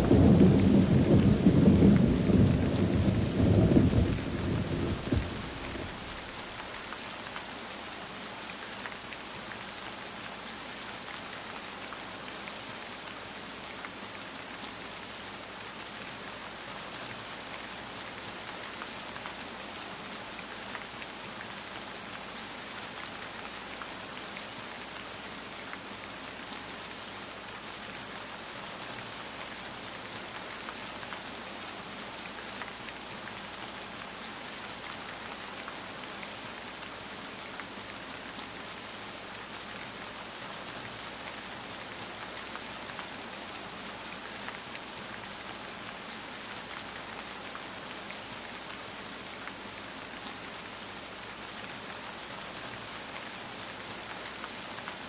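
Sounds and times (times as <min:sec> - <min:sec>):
low thunder rumble: 0:00.0 - 0:06.3
steady rain falling: 0:00.0 - 0:55.0.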